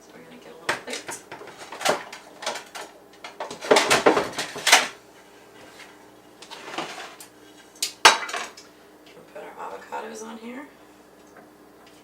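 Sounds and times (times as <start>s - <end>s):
knocks and clatter of dishes: 0.7s - 4.9s.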